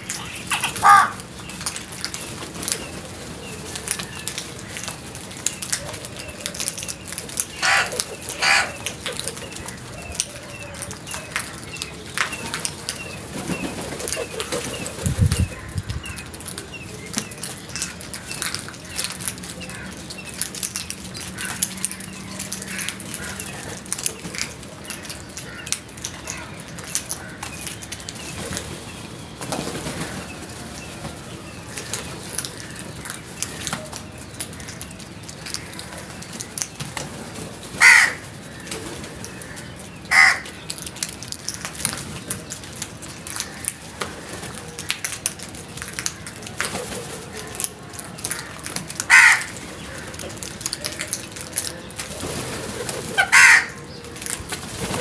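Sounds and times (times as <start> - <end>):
crows cawing: 0.2 - 1.3, 7.5 - 9.8, 19.6 - 20.1, 21.3 - 21.9, 22.6 - 26.5, 37.8 - 38.7, 39.3 - 40.5, 48.2 - 50.3, 53.2 - 53.9.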